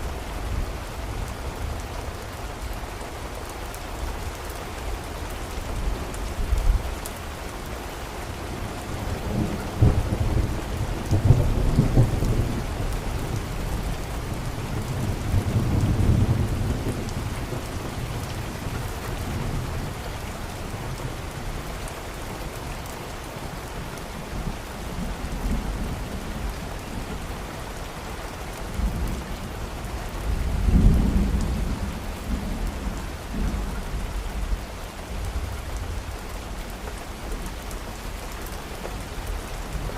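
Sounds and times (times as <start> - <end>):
rain falling: 0.0 - 39.9
rolling thunder rumbles: 9.0 - 19.8, 28.7 - 34.6.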